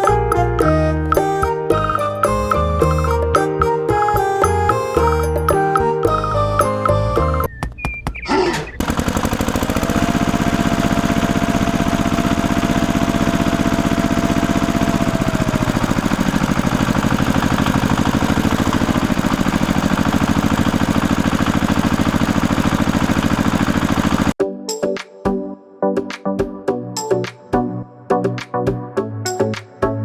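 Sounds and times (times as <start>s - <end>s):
small engine running: 8.3s - 24.4s.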